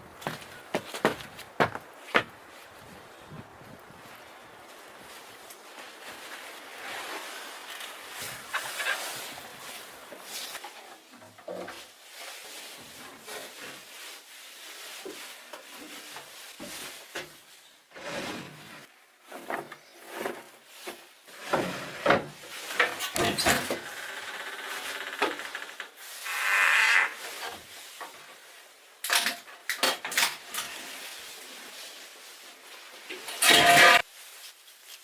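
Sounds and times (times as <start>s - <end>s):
scraping and rubbing on wood: 5.1s - 17.3s, 29.9s - 34.1s.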